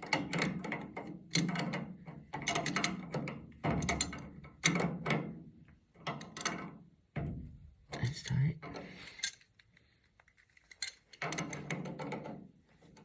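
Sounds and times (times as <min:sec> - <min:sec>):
wrench clicking and scraping metal: 0:00.0 - 0:04.8, 0:08.7 - 0:13.0.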